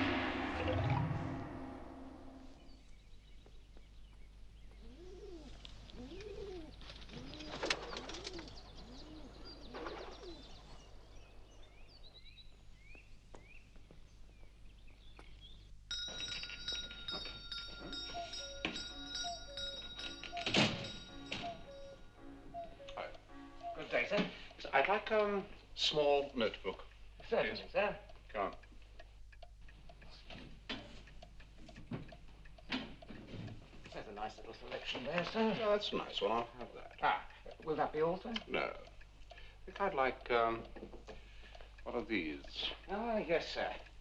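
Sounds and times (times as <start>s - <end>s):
sharp musical hit: 0.0s - 2.8s
small birds chirping: 2.5s - 44.0s
doves cooing: 4.5s - 11.9s, 17.8s - 24.4s
music with sustained notes: 17.8s - 24.2s.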